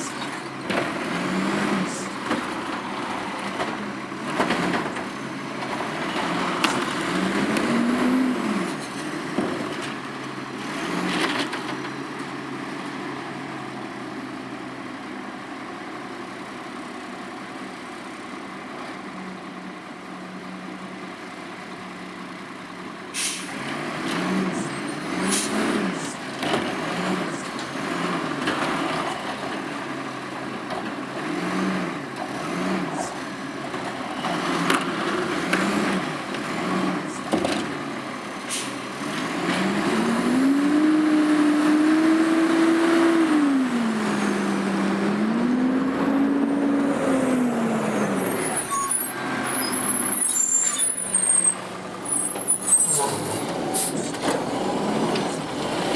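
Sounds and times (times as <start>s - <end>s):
garbage truck diesel engine: 0.0s - 55.9s
air brake hisses: 23.1s - 23.6s, 38.5s - 38.8s.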